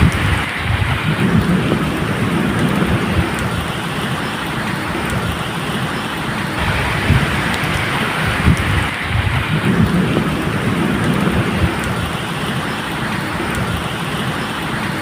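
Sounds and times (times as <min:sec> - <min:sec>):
thunder rolling: 0:00.0 - 0:03.8, 0:06.6 - 0:12.7
steady rain: 0:00.0 - 0:15.0.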